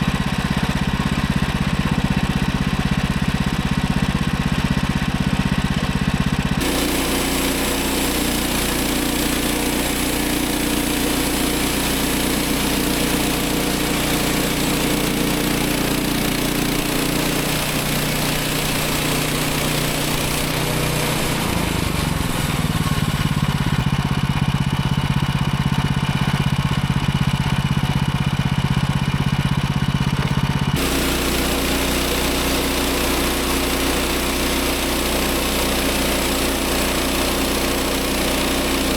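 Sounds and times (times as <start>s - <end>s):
bandsaw mill sawing a log: 0.0s - 38.9s
small gasoline engine running: 0.0s - 38.9s.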